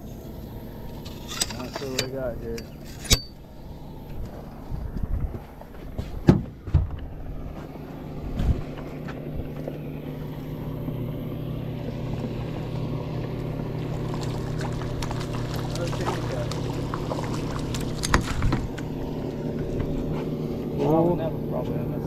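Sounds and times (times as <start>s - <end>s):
boat motor humming: 0.0s - 22.0s
knocks and handling in a boat: 4.0s - 9.8s, 11.9s - 21.0s.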